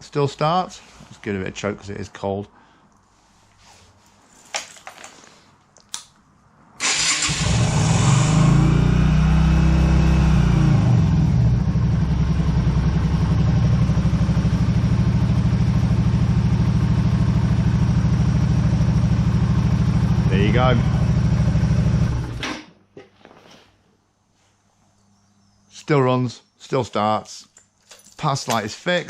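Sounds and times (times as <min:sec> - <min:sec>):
motorcycle engine starting and idling: 0:06.8 - 0:22.7.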